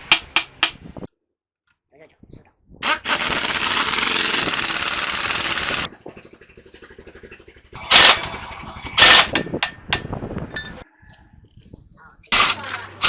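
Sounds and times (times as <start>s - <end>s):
pneumatic impact wrench rattling: 0.0s - 0.8s, 2.8s - 10.8s, 12.3s - 13.0s.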